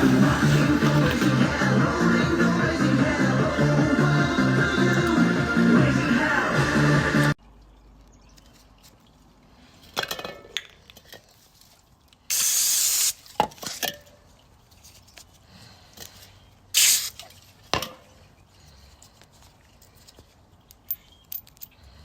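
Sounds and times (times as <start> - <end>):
spray hiss: 12.3 - 13.3, 16.8 - 17.2
clinks and knocks: 19.8 - 21.8.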